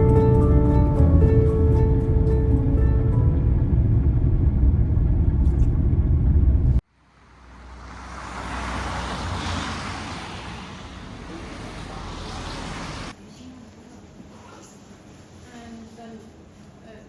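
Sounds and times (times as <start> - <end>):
background music: 0.0 - 3.9
road vehicle tyre and engine noise: 0.0 - 13.2.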